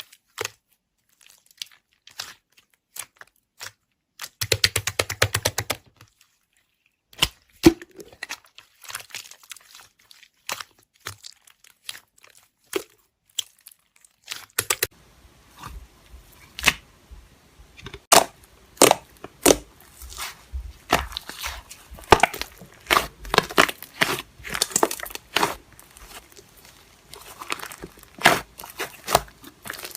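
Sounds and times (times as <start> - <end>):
packaging crinkling and rustling: 19.0 - 29.9.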